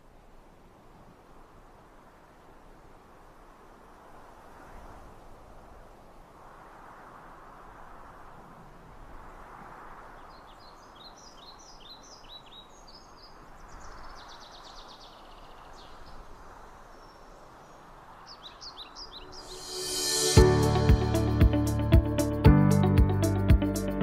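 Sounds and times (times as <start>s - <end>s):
outdoor background hiss: 0.0s - 24.0s
songbirds chirping: 10.2s - 20.4s.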